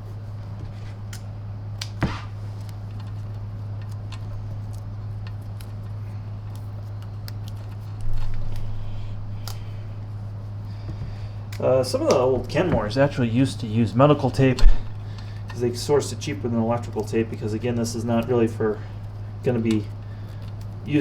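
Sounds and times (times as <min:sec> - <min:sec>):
steady low hum: 0:00.0 - 0:21.0
rustling noise: 0:02.0 - 0:11.2.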